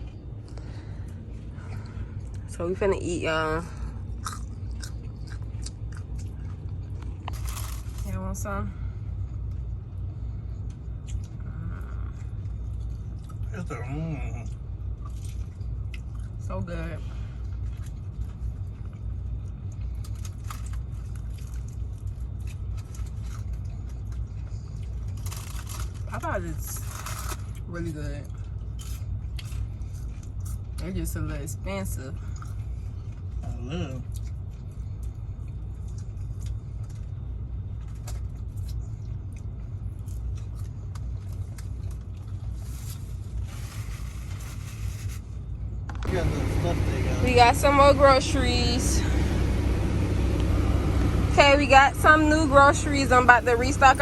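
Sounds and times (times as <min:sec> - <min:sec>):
diesel engine low rumble: 0:00.0 - 0:54.0
truck engine rumbling: 0:43.5 - 0:54.0.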